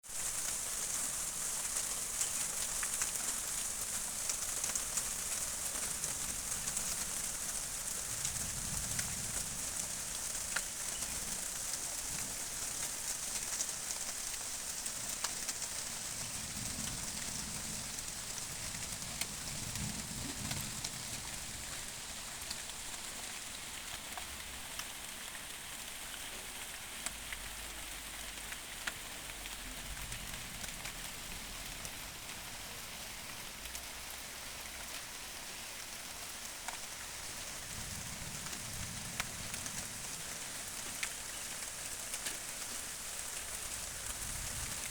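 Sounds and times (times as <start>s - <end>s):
rain falling on foliage: 0.0s - 44.9s.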